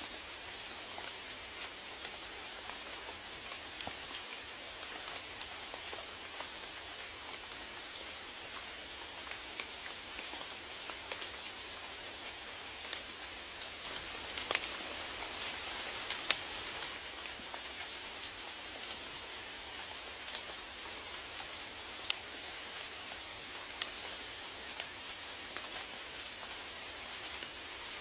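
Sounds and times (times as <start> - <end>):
raindrops ticking on a surface: 0.0 - 28.0
rain hissing: 9.1 - 28.0.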